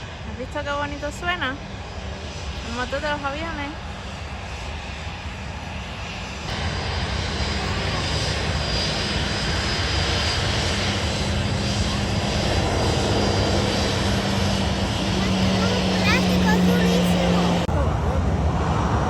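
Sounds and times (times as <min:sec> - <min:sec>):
airliner engines rumbling: 0:00.0 - 0:19.0.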